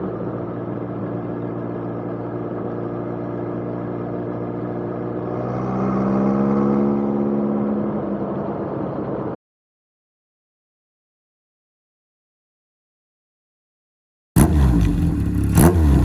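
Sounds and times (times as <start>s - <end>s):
motorcycle engine accelerating: 0.0s - 9.4s, 14.4s - 16.0s.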